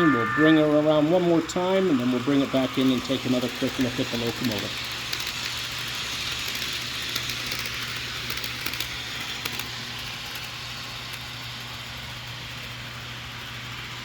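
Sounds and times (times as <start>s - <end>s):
model train diesel engine drone: 0.0s - 14.0s
wheels clicking over track joints: 1.1s - 12.1s.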